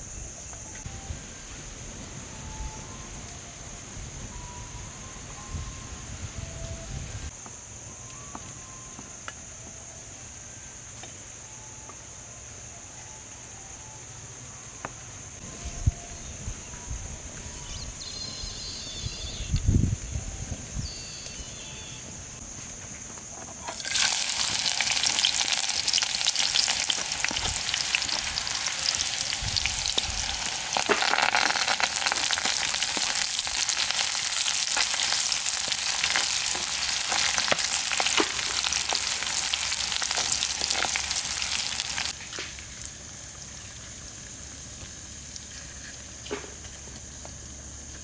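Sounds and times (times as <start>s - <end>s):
oil sizzling and popping in a pan: 23.6s - 47.0s.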